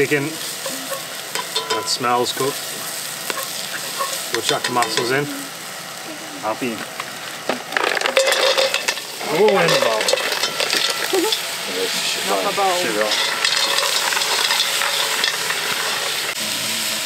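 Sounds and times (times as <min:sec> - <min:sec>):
mussels sizzling in a pot: 0:00.0 - 0:17.0
voices in background: 0:01.8 - 0:07.0, 0:11.0 - 0:13.3
shells scraping against pot: 0:03.3 - 0:05.3, 0:07.6 - 0:11.6, 0:12.4 - 0:16.4.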